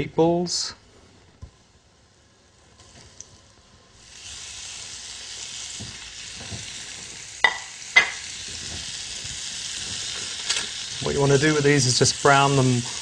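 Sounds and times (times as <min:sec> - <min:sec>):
meatballs sizzling in oil: 0:02.7 - 0:13.0.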